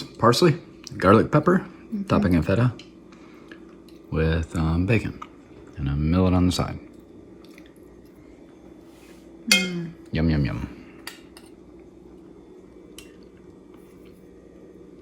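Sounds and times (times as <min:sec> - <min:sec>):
cutlery clinking on a plate: 0:09.5 - 0:09.8.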